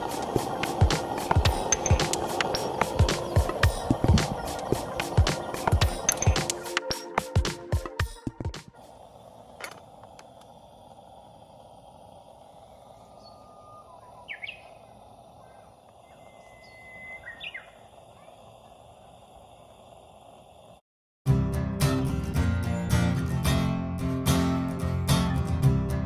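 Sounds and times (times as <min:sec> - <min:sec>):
background hiss: 0:00.0 - 0:07.1
bird chirps: 0:13.0 - 0:18.7
bird whistle: 0:13.2 - 0:14.8, 0:15.4 - 0:17.8.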